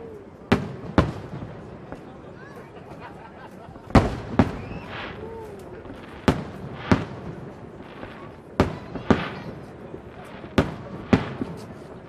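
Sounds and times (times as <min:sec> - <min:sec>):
faint firework pops: 0:00.5 - 0:02.2, 0:02.9 - 0:12.0
firework shells bursting: 0:02.9 - 0:12.0.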